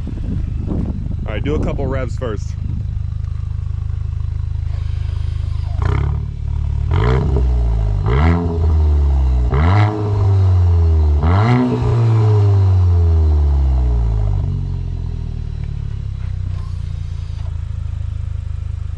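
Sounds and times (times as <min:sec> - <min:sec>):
car exhaust idling and revving: 0:00.0 - 0:18.9.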